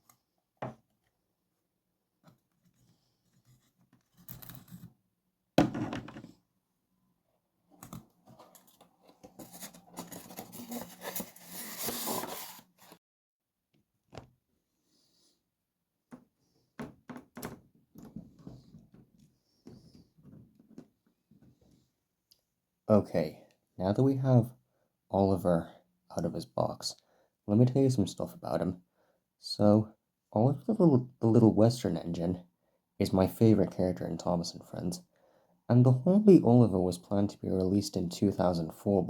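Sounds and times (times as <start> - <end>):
packaging rustling and scraping: 8.2 - 13.0.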